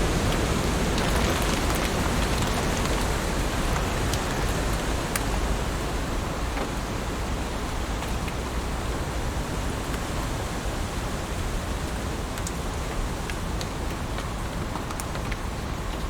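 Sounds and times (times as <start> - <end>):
heavy rain falling: 0.0 - 10.3.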